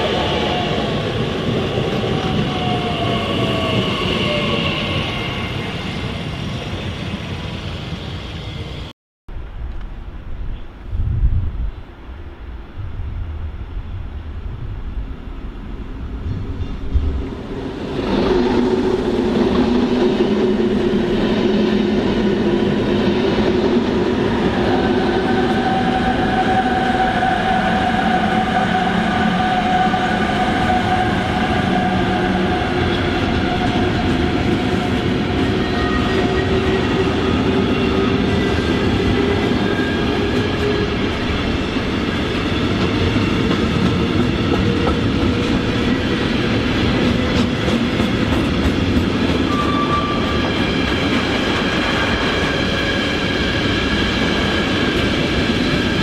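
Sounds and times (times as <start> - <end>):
train wheels clattering on rails: 29.2 - 56.0.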